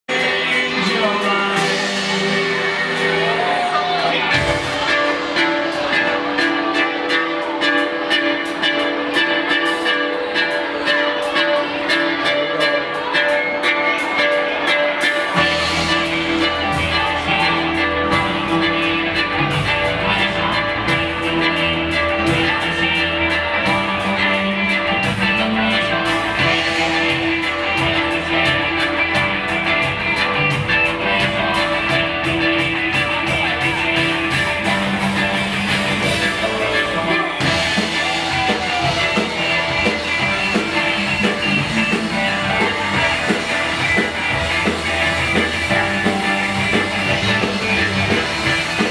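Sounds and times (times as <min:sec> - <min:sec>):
bass line: 0:00.0 - 0:48.9
drums: 0:00.0 - 0:48.9
electric guitar: 0:00.0 - 0:48.9.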